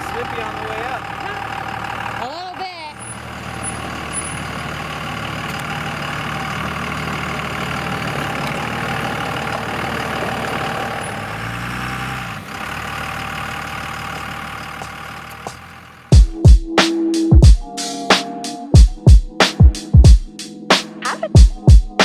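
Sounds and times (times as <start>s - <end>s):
diesel truck engine running: 0.0s - 16.2s.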